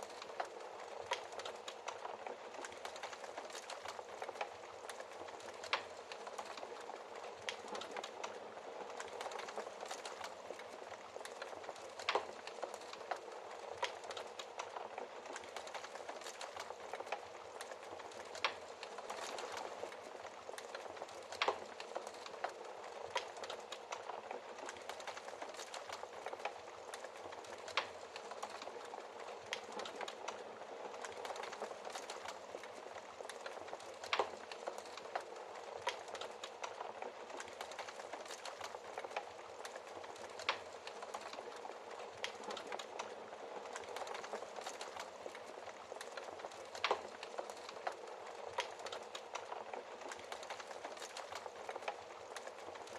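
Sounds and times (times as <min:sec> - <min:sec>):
fire popping: 0:00.0 - 0:52.9
wood fire crackling: 0:00.0 - 0:52.9.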